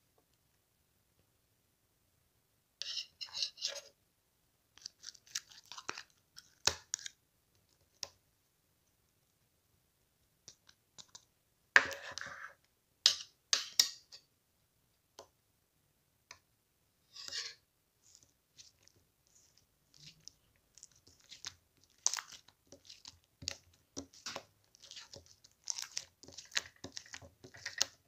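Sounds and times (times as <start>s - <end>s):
slime squishing by hand: 17.2s - 28.0s.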